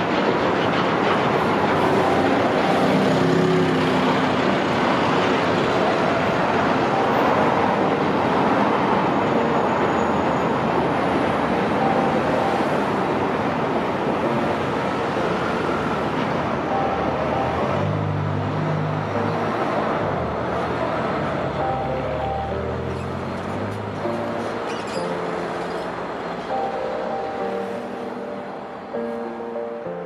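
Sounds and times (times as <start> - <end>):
train wheels rumbling on bridge: 0.0 - 21.7.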